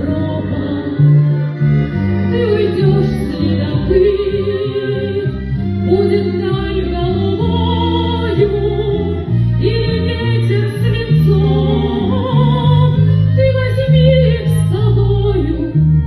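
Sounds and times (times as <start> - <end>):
instrumental accompaniment with bass: 0.0 - 16.0.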